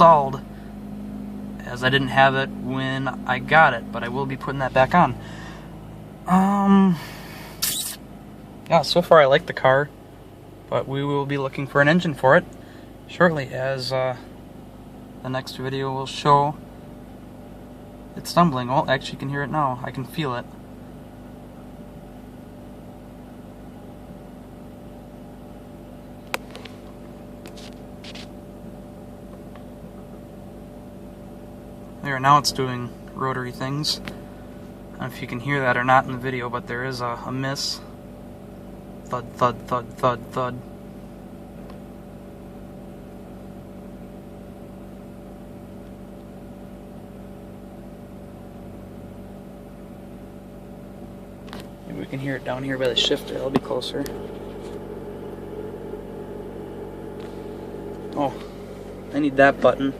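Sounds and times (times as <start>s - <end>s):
rotary engine idling unevenly: 0.0s - 59.9s
sharp click: 7.6s - 8.0s.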